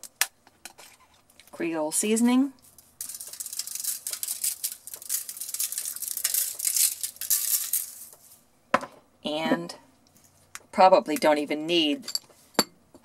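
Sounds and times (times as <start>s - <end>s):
seasoning rattling in a shaker: 2.7s - 8.3s.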